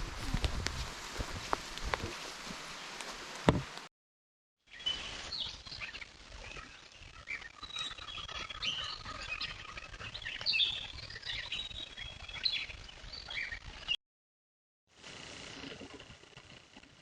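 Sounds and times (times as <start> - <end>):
birds chirping and whistling: 4.7 - 14.0.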